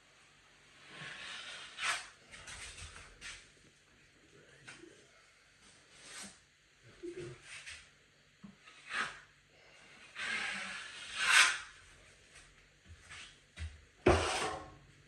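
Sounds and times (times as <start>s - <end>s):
drywall knife scraping: 0.9s - 2.1s, 8.6s - 11.8s.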